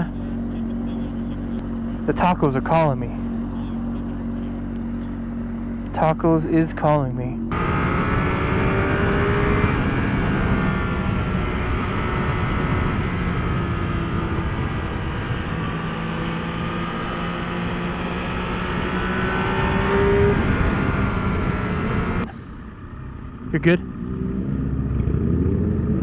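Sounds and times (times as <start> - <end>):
motorcycle engine running: 0.0 - 26.0
wind rush: 7.6 - 22.2.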